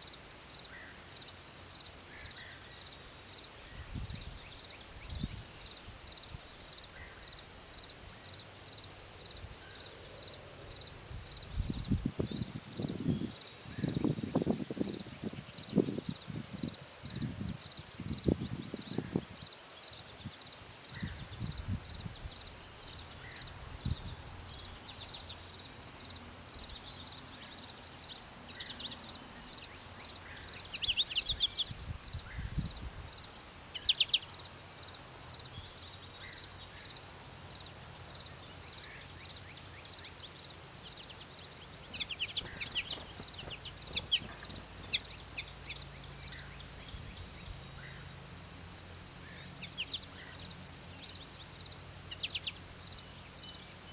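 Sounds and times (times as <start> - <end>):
crickets chirping: 0.0 - 53.9
bird chirps: 28.6 - 31.8, 33.8 - 34.4, 40.9 - 46.7.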